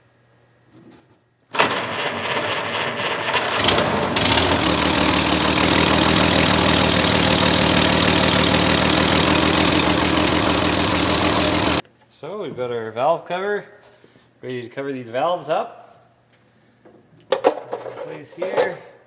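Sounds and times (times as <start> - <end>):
car engine cranking and running: 1.6 - 11.8.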